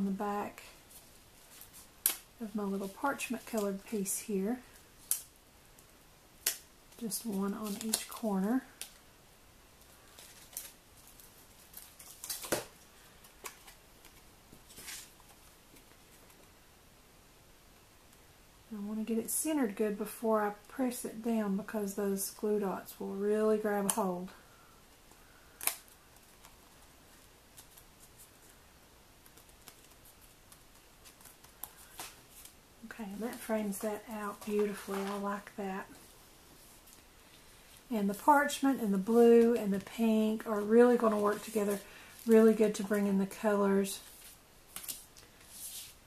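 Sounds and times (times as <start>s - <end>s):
paper rustle: 9.8s - 16.5s, 33.2s - 35.5s
paper card stock taps and rustles: 33.2s - 35.3s.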